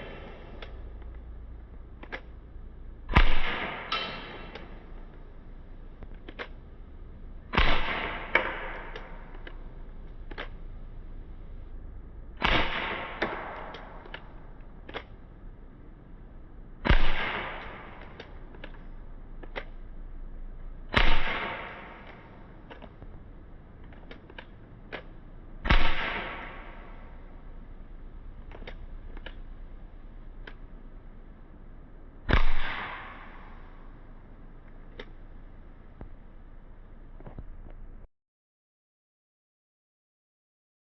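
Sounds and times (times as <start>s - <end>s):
bb gun shots: 0.0s - 0.8s, 3.1s - 5.1s, 7.5s - 9.7s, 12.4s - 15.2s, 16.8s - 19.8s, 20.9s - 23.0s, 24.0s - 27.4s, 32.2s - 34.0s
small clicks: 0.0s - 2.5s, 5.9s - 6.7s, 7.6s - 10.8s, 12.4s - 15.4s, 16.9s - 19.9s, 21.0s - 27.3s, 28.4s - 30.8s, 34.6s - 36.2s.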